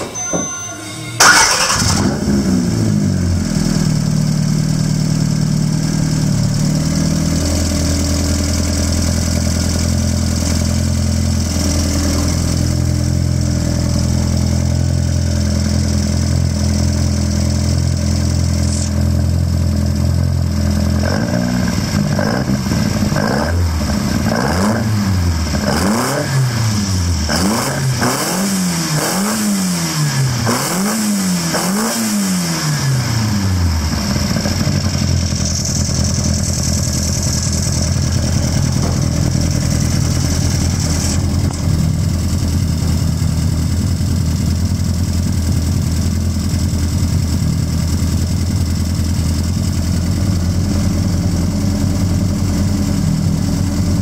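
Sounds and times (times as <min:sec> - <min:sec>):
engine revs blipped: 0:00.0 - 0:04.1, 0:21.0 - 0:41.4
car engine idling: 0:01.2 - 0:28.1, 0:32.5 - 0:54.0.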